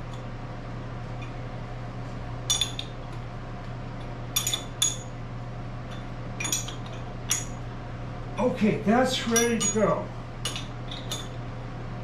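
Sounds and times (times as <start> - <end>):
steady low hum: 0.0 - 12.0
steel tools clinking on metal: 9.2 - 11.4.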